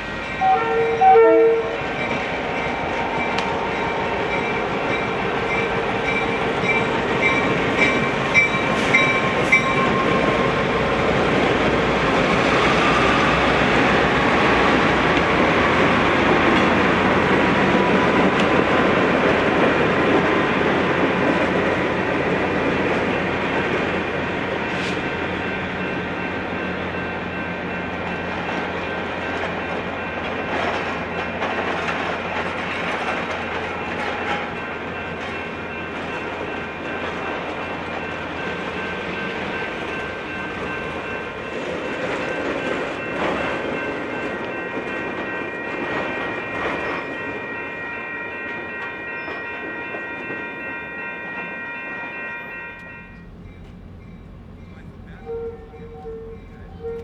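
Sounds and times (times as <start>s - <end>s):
train horn blast: 0.0s - 2.1s, 52.8s - 57.0s
passing train: 0.0s - 57.0s
bell ringing rapidly: 51.7s - 57.0s.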